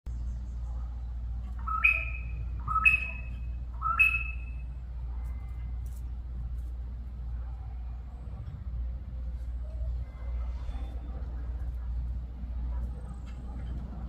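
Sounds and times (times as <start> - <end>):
steady low hum: 0.1 - 14.0
bird calling: 1.4 - 4.7.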